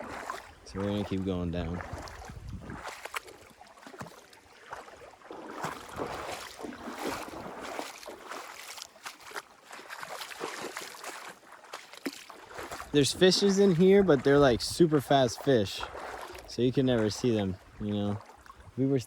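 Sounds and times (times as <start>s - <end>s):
footsteps splashing through stream: 0.0s - 19.0s
running water: 0.0s - 19.0s.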